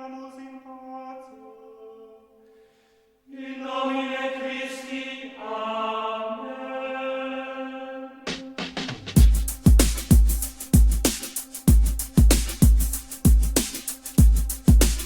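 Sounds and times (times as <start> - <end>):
chant-like held notes music: 3.3 - 12.2.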